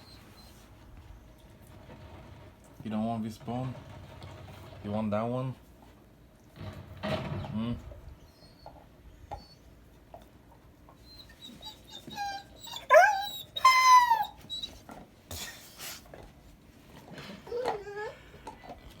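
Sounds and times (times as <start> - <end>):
dog whining: 0.0 - 0.8, 8.2 - 9.8, 10.9 - 16.0, 17.2 - 18.8.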